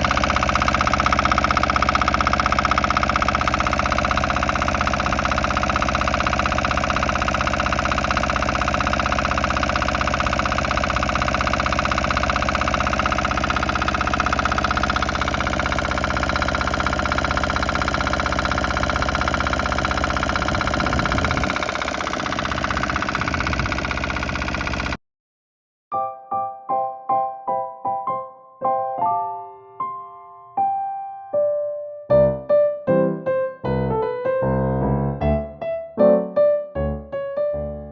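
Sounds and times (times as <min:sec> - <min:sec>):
excavator engine idling: 0:00.0 - 0:25.0.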